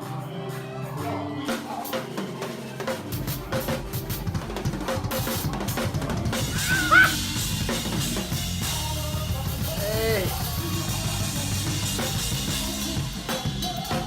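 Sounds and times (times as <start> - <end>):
drum kit playing: 0.0 - 14.0.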